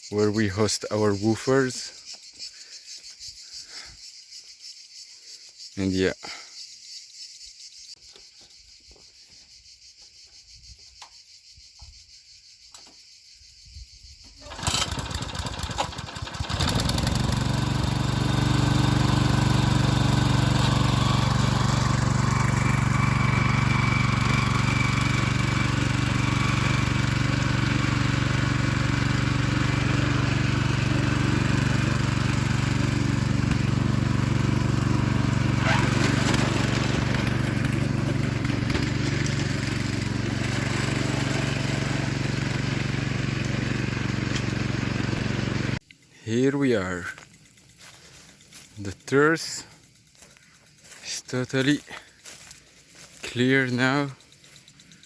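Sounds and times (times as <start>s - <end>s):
insects chirring: 0.0s - 16.6s, 45.8s - 55.0s
small tiller engine running: 14.4s - 55.0s.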